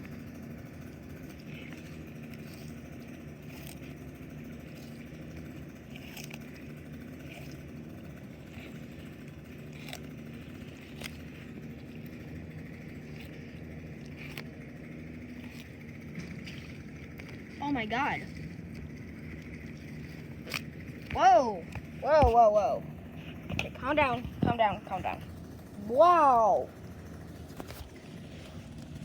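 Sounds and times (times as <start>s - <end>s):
low mechanical hum: 0.0s - 29.0s
tortoise crunching watermelon rind: 0.0s - 29.0s.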